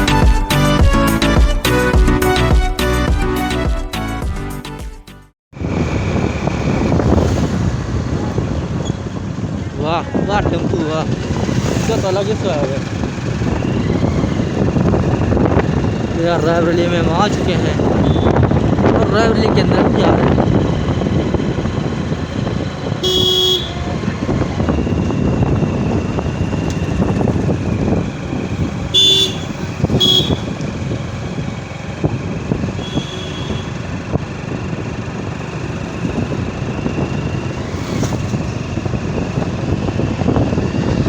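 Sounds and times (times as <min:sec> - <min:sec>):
road and wind noise: 0:05.5 - 0:41.0
motorcycle engine: 0:05.6 - 0:41.0
vehicle horns honking: 0:17.9 - 0:18.4, 0:22.9 - 0:24.1, 0:28.8 - 0:30.6, 0:32.6 - 0:34.0.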